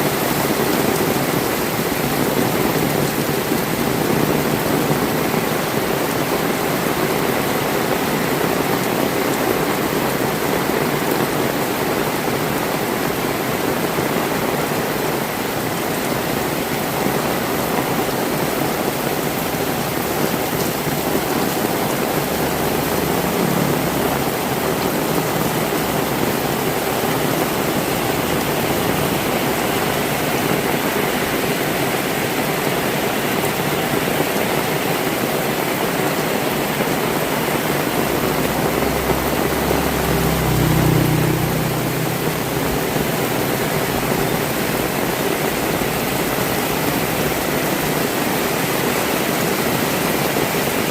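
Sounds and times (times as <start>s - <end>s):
heavy rain on roofs: 0.0s - 50.9s.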